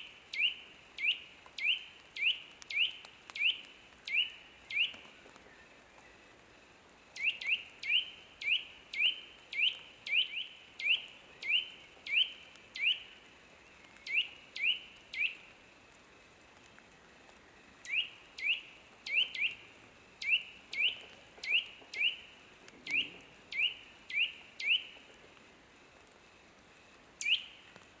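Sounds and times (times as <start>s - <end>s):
bird chirping: 0.3s - 6.2s, 7.2s - 13.2s, 13.8s - 15.5s, 17.8s - 25.0s, 27.2s - 27.7s.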